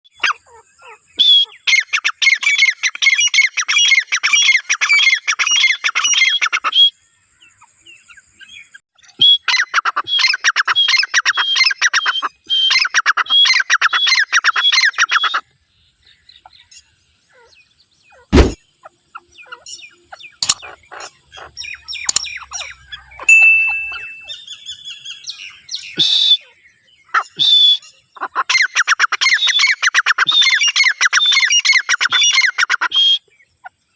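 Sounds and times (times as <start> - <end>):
birds calling shrill rapid notes: 0.1 - 15.4, 16.1 - 33.6
sharp click: 18.4 - 18.6, 20.4 - 20.7, 22.0 - 22.3.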